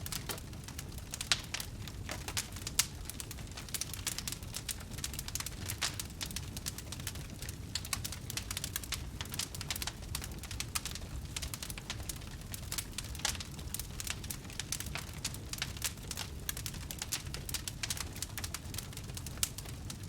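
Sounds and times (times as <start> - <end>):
low rumble of burning: 0.0 - 20.0
wood fire crackling: 0.0 - 20.0.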